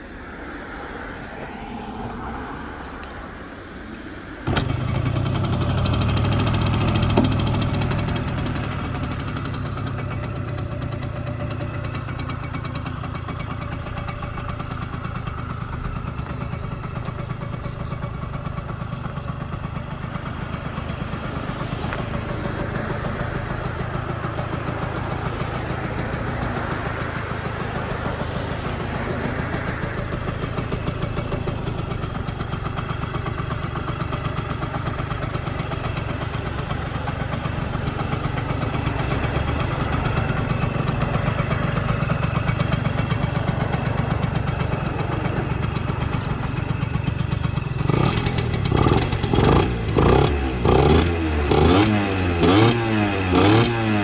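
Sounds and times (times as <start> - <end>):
motorcycle engine idling: 4.4 - 54.0
engine revving: 4.5 - 9.6, 47.7 - 54.0.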